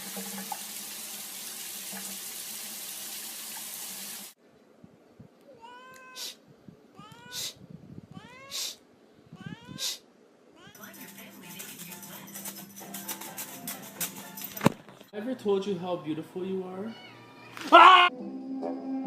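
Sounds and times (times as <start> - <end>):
cat meowing: 5.5 - 10.0, 10.6 - 10.8, 16.9 - 18.1.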